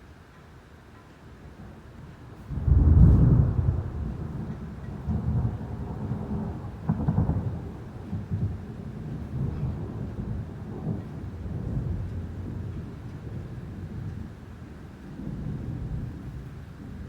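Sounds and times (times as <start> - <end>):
steady rain: 0.0 - 17.0
thunder rumbling: 2.5 - 14.4.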